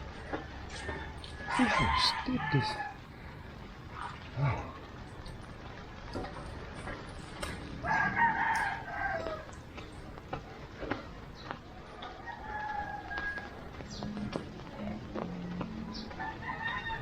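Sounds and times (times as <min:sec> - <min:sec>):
rooster crowing: 0:00.7 - 0:03.1, 0:07.8 - 0:09.6, 0:12.0 - 0:13.8, 0:15.9 - 0:17.0.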